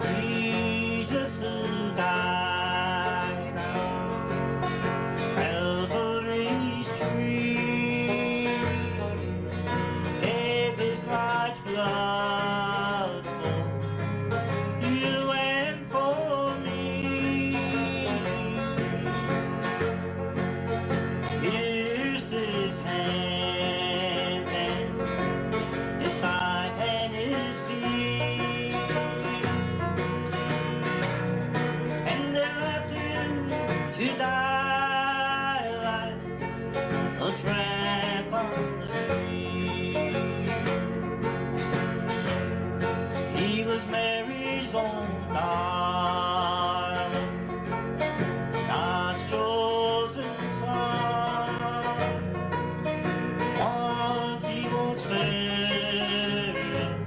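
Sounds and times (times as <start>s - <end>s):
string band playing: 0.0s - 57.0s.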